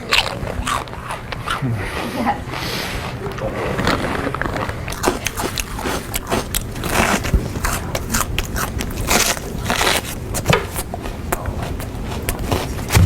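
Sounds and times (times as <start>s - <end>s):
person crunching a snack: 3.7s - 13.0s.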